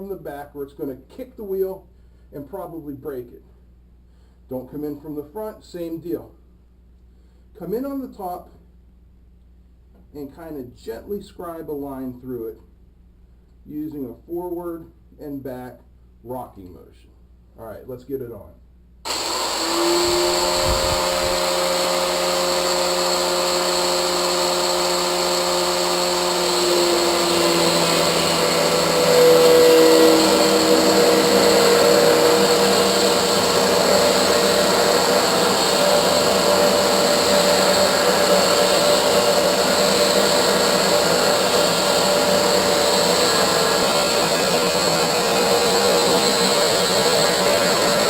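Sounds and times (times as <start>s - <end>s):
angle grinder cutting metal: 19.1s - 48.0s.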